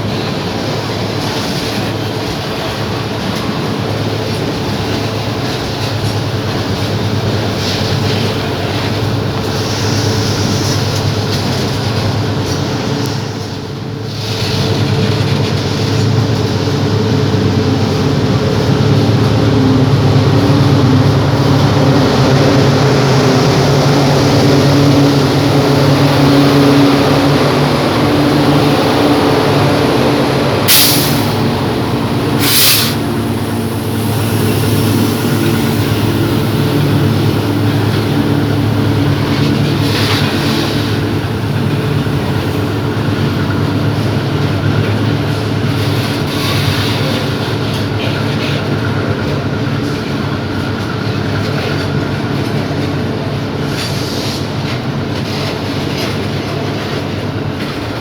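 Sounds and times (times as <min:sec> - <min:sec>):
train wheels rumbling on rail: 0:00.0 - 0:58.0
brief hisses: 0:30.7 - 0:31.4, 0:32.4 - 0:36.2.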